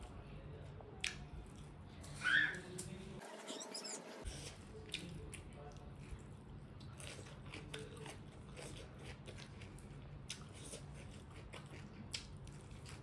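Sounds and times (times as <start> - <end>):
chewing with wet mouth clicks: 4.8 - 13.0.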